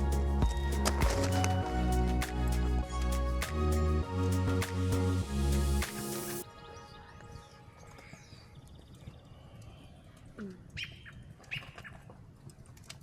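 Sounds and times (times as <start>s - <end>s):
birds chirping: 6.4s - 12.0s.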